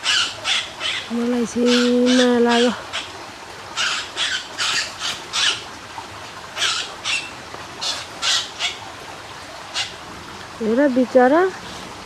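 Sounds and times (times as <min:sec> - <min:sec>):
bird squawking harshly: 0:03.8 - 0:05.6.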